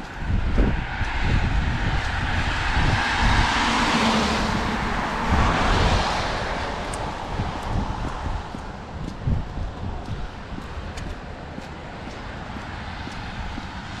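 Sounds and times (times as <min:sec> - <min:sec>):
wind buffeting microphone: 0:00.0 - 0:14.0
tyres hissing on wet road: 0:02.0 - 0:08.2.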